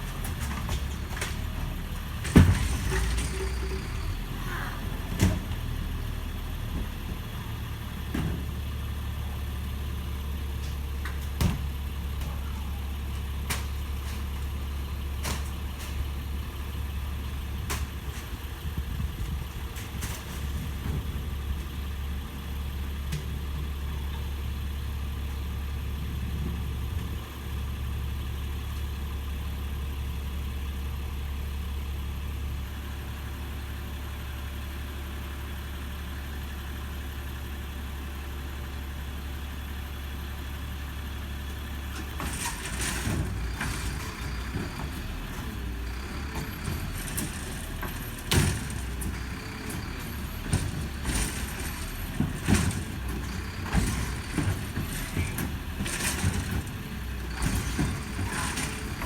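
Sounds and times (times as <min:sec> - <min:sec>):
truck engine idling: 0:00.0 - 0:59.0
clattering: 0:42.0 - 0:59.0.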